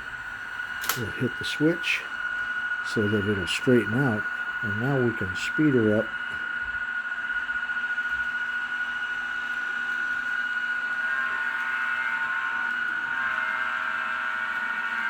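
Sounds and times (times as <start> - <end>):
low hum: 0.0 - 14.4
high turbine whine: 0.0 - 15.0.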